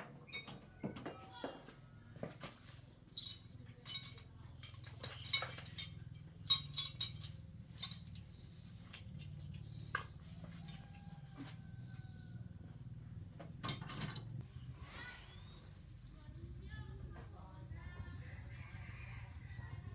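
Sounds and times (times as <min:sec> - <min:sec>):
faint low hum: 0:00.0 - 0:19.9
metal tools clinking: 0:02.4 - 0:09.8, 0:13.6 - 0:14.4.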